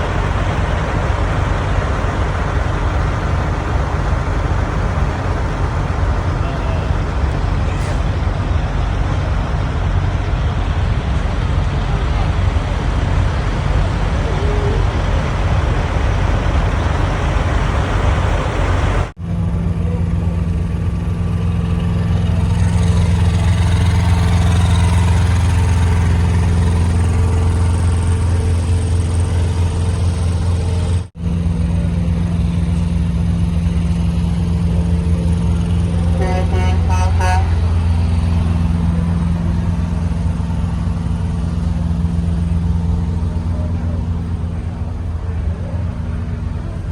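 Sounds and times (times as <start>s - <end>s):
diesel engine rumbling: 0.0s - 46.9s
truck horn toots: 36.0s - 37.8s.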